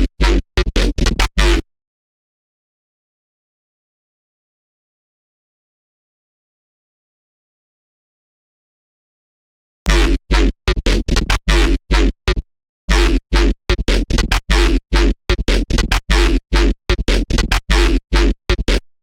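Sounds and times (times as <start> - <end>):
deep sub-bass: 9.9 - 12.2
choppy gritty synthesizer notes: 9.9 - 18.8.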